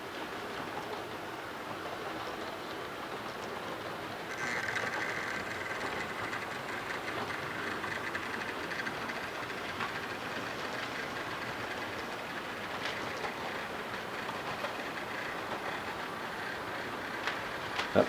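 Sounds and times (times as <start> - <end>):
model train rolling on track: 0.0 - 18.0
faint clicks: 4.3 - 18.0.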